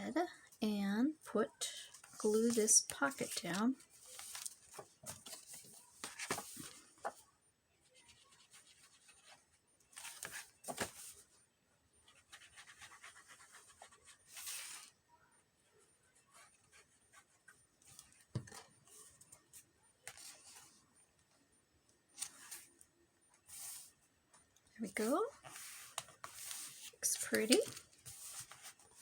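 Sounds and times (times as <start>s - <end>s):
paper rustling: 1.9s - 7.2s, 8.0s - 11.3s, 12.2s - 14.9s, 24.9s - 29.0s.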